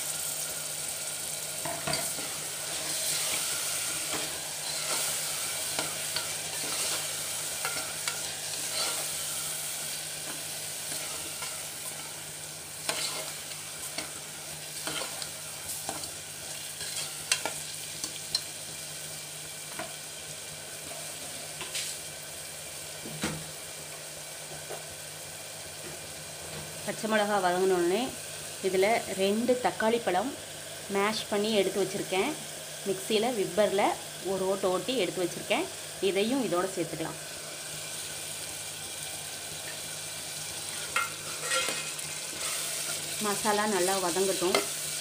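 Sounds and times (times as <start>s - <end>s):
paste sizzling in hot oil: 0.0s - 23.0s, 26.2s - 45.0s
ladle scraping and knocking pot: 41.0s - 42.6s.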